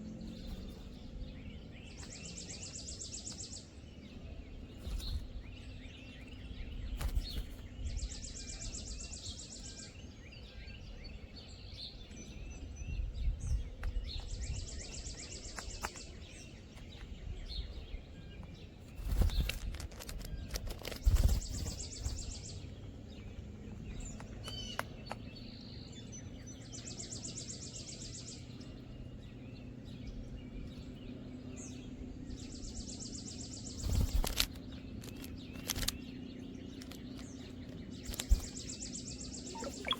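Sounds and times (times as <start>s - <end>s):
faint bird chirps: 32.6s - 39.9s
songbird trilling: 35.0s - 39.9s.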